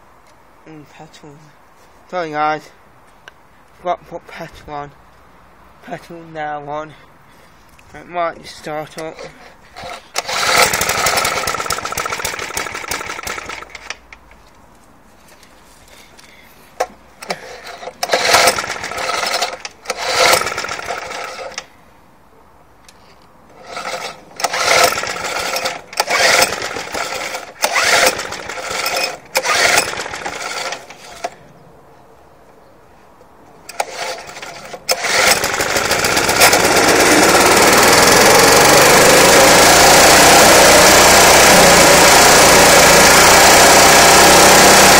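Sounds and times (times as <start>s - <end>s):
lawnmower engine running: 8.9s - 14.0s, 17.2s - 21.7s, 23.5s - 31.4s, 33.7s - 44.9s
starter cord pulls whirring: 8.9s - 14.0s, 17.2s - 21.7s, 23.5s - 31.4s, 33.7s - 44.9s.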